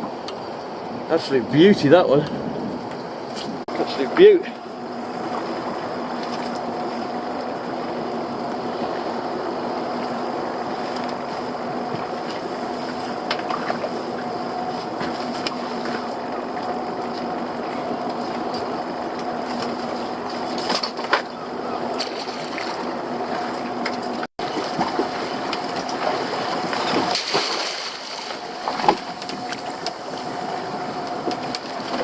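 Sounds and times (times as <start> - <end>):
boat motor humming: 0.0 - 32.0
water splashing: 21.9 - 32.0.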